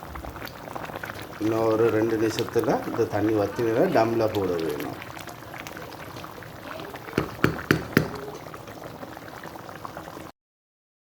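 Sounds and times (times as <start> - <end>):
water boiling in a pot: 0.0 - 10.3
sharp knocks: 7.2 - 8.2.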